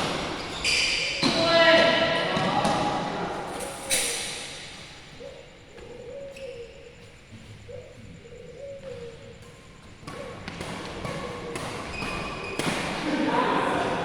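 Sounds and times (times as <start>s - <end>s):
shoe squeaks on court floor: 0.0s - 2.6s, 11.1s - 13.0s
sharp knocks of shuttlecock hits: 10.0s - 13.3s.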